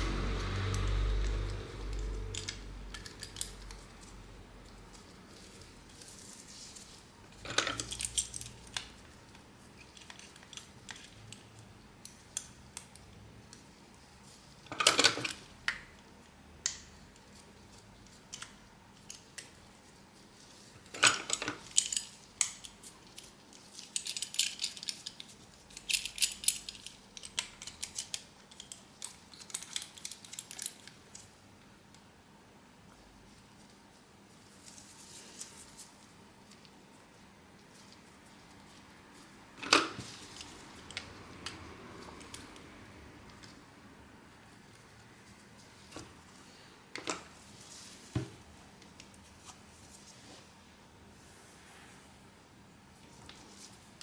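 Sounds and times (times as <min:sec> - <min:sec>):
small tools clicking and clattering: 0:00.7 - 0:13.6, 0:20.8 - 0:31.3.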